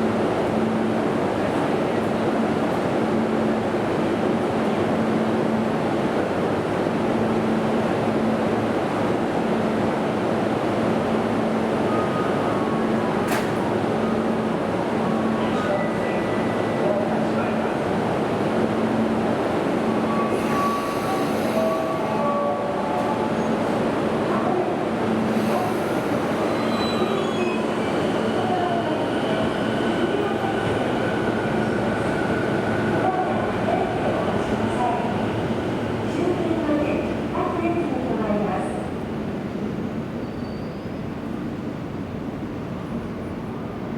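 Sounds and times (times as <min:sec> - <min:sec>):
train rumbling: 0:00.0 - 0:43.9
faint high squealing: 0:26.5 - 0:28.0, 0:40.2 - 0:41.0.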